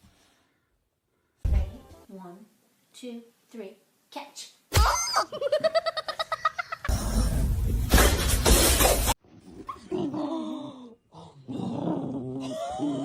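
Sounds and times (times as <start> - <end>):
loud crash-like noise: 6.9 - 9.2.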